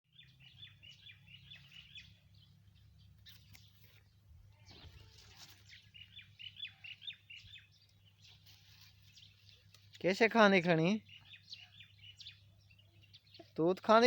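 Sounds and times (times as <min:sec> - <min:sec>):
high bird chirps: 0:00.1 - 0:09.8.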